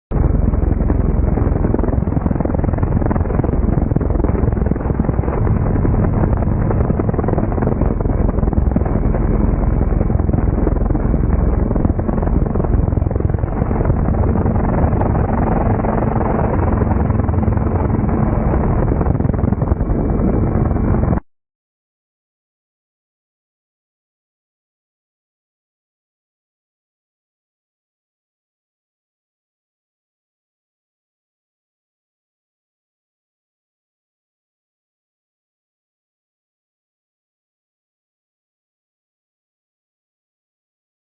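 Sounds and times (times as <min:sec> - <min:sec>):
faint steady hum: 0:00.1 - 0:21.2
rotor and engine rumble: 0:00.1 - 0:21.2.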